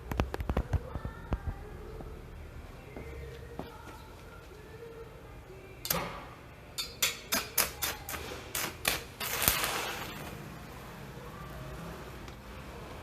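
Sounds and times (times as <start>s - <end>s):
welding arc crackling pops: 7.6s - 10.3s.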